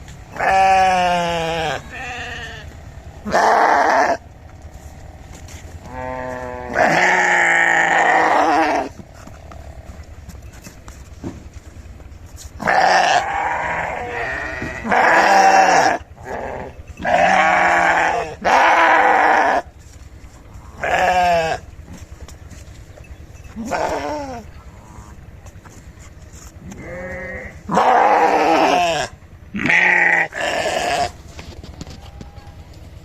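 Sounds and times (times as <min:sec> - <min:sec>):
sheep bleating: 0:00.3 - 0:04.7, 0:05.4 - 0:09.0, 0:12.6 - 0:19.8, 0:20.6 - 0:21.8, 0:23.5 - 0:25.2, 0:26.6 - 0:31.2.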